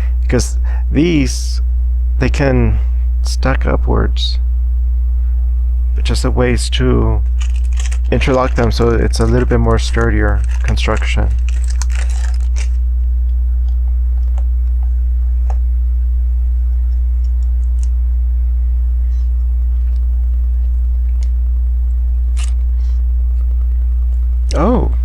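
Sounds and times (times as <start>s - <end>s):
low electrical hum: 0.0s - 25.0s
plastic pieces clicking: 7.4s - 12.8s.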